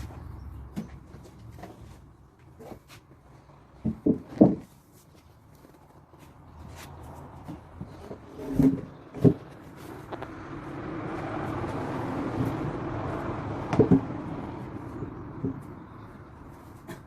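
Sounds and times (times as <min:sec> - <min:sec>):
vehicle passing by: 0:06.2 - 0:16.8.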